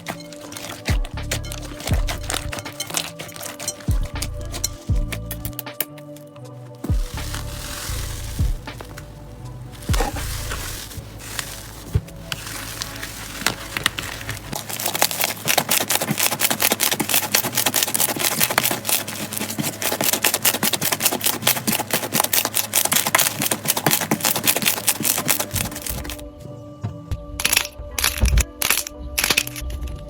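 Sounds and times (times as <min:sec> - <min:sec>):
slime crackling under hand: 0:06.9 - 0:09.1, 0:09.7 - 0:26.1.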